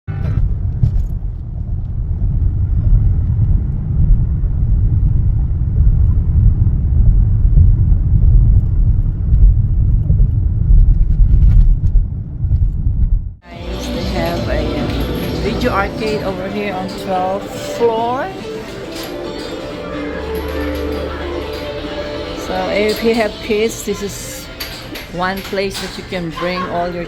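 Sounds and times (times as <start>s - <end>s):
loud low rumble: 0.1s - 18.7s.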